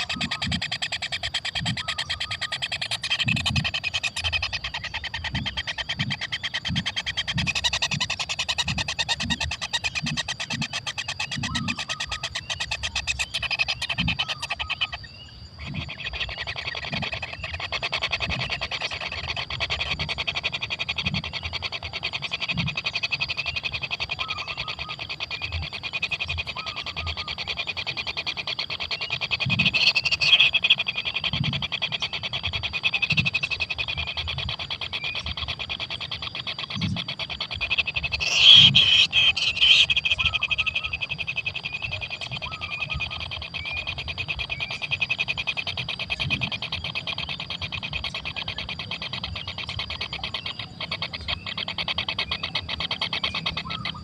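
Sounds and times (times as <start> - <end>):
nestlings buzzing begging chorus: 28.8 - 33.9, 34.6 - 48.3.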